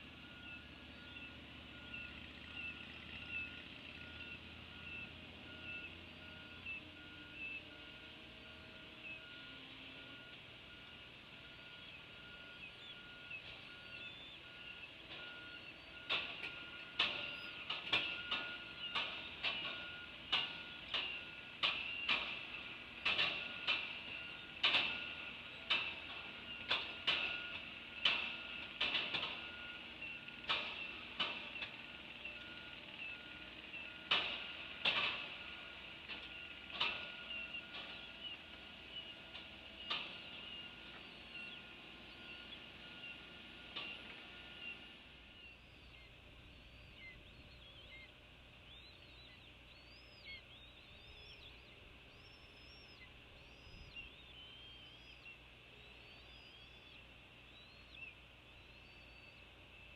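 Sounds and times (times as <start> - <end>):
faint rapidly pulsing beep: 3.2 - 18.9.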